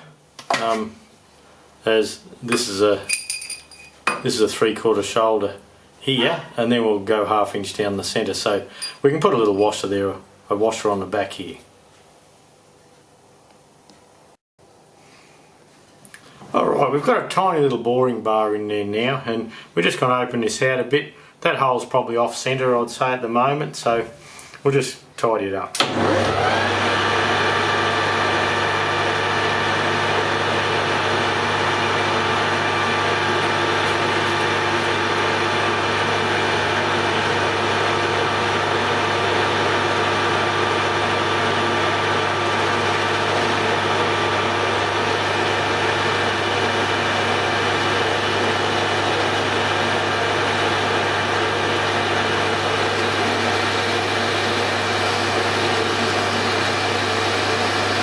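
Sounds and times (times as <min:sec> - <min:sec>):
metal lathe running: 0:25.8 - 0:58.0.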